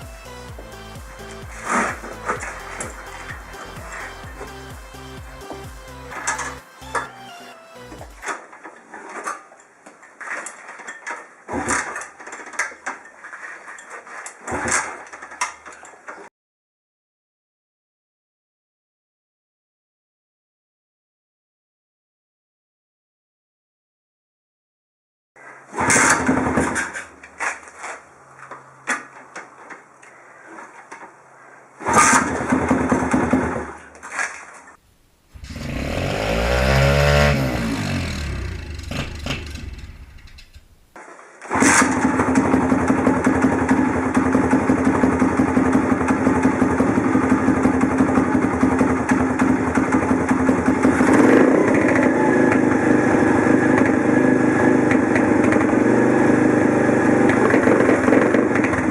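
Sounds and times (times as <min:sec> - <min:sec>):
motorbike engine: 0:00.0 - 0:07.1, 0:35.4 - 0:40.9, 0:41.6 - 0:58.9.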